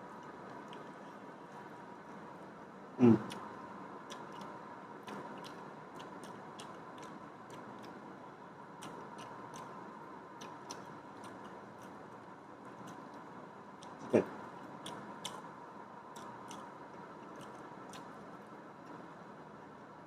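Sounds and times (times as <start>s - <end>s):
person chewing with wet mouth clicks: 3.2s - 3.5s, 4.1s - 8.0s, 8.8s - 9.8s, 10.4s - 13.2s, 14.6s - 15.4s, 16.1s - 18.2s.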